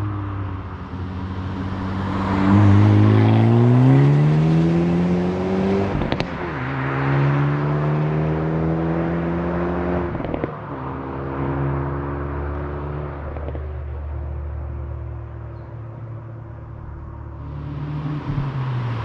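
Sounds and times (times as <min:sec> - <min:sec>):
car engine accelerating hard: 0:01.0 - 0:13.6.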